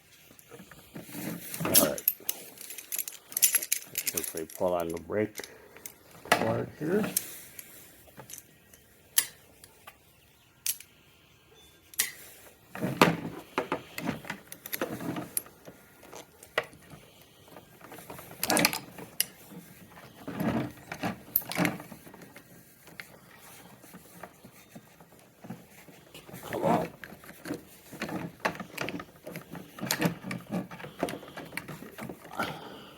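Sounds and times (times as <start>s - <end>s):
metallic clicks and clinks: 1.5s - 9.8s, 10.6s - 10.9s, 20.3s - 22.2s.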